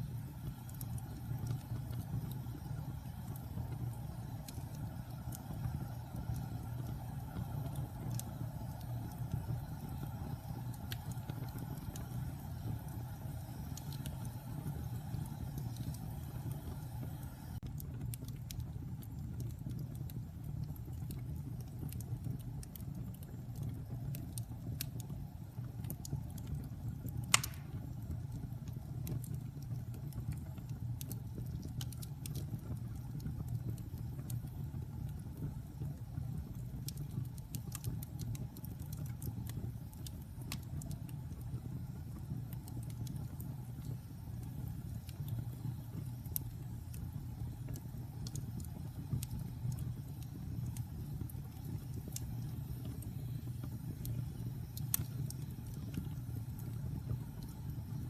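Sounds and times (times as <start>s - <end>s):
wood fire crackling: 0.0s - 58.0s
loud pop from fire: 27.3s - 27.9s.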